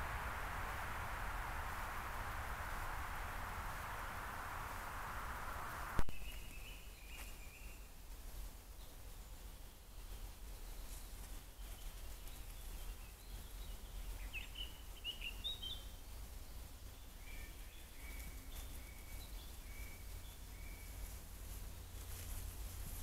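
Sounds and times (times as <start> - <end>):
low hum: 0.0 - 6.4
birds chirping: 0.0 - 7.9, 10.6 - 22.2.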